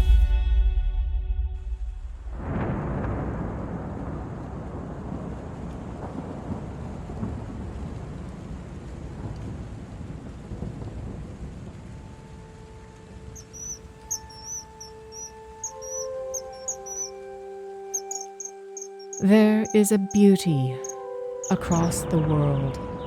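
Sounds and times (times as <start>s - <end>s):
thunder rumbling: 2.0s - 19.6s
rain: 2.2s - 23.0s
soft held music notes: 12.6s - 22.9s
high chirps: 13.4s - 22.2s.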